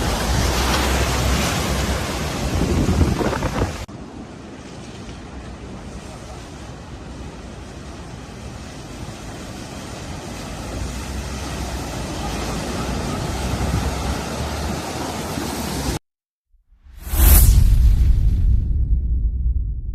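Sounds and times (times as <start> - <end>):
wind buffeting microphone: 0.0 - 3.9
rushing floodwater: 0.0 - 16.0.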